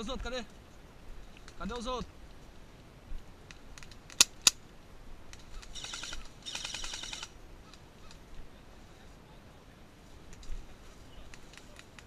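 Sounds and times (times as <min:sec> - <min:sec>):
bird trilling: 0:05.5 - 0:08.2.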